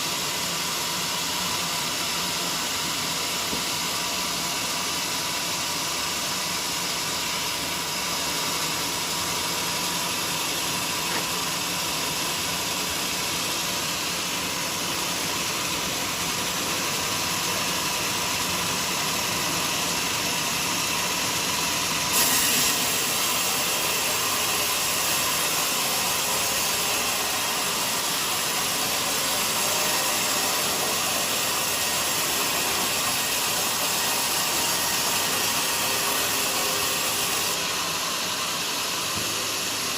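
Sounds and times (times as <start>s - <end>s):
band sawmill hissing: 0.0s - 39.9s.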